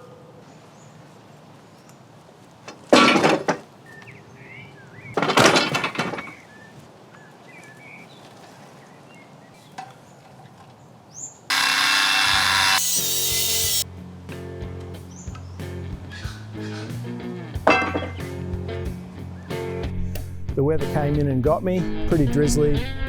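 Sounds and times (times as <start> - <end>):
power tool running: 11.5 - 13.8.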